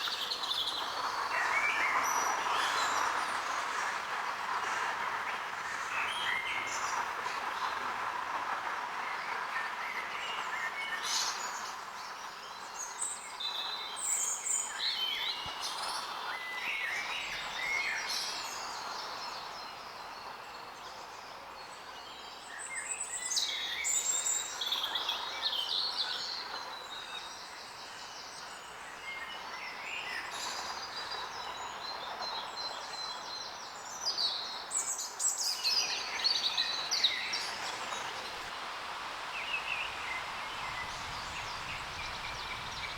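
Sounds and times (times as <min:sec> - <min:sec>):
outdoor background hiss: 0:00.0 - 0:42.9
songbirds singing and chirping: 0:09.1 - 0:38.5, 0:39.3 - 0:42.9.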